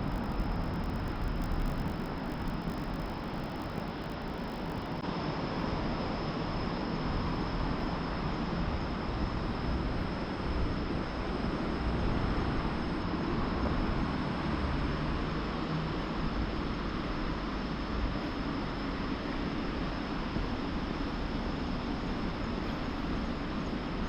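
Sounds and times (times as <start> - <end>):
vehicle rumble: 0.0 - 5.0.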